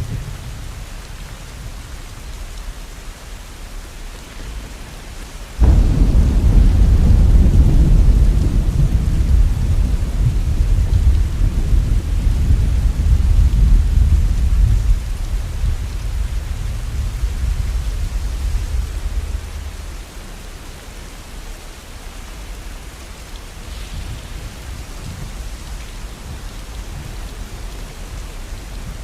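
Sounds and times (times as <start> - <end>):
rain falling: 0.0 - 29.0
thunder rumbling: 5.6 - 20.8, 23.4 - 29.0.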